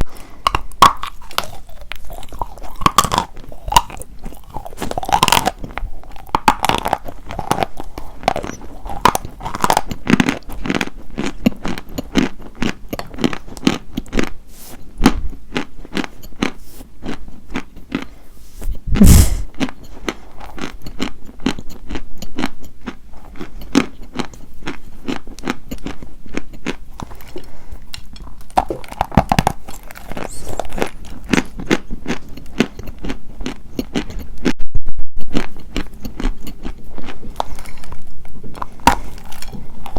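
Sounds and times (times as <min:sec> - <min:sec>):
chewing crunchy chalk: 0:00.1 - 0:34.6, 0:35.3 - 0:39.9.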